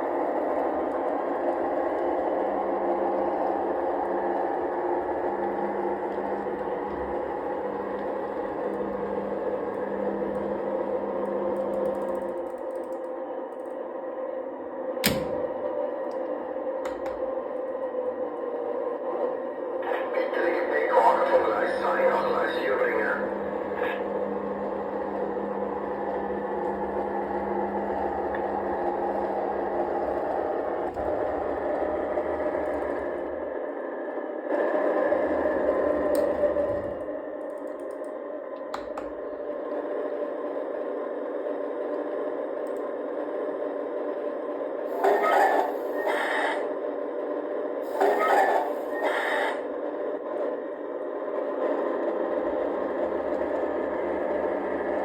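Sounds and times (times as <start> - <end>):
model locomotive motor hum: 0.0 - 20.0, 20.9 - 55.0
model train wheels rolling: 47.8 - 49.6.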